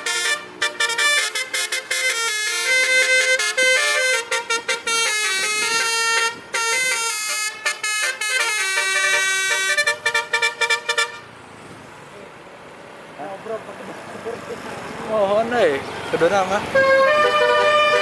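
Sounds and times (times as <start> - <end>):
musical air horn playing a tune: 0.0 - 11.2, 16.8 - 18.0.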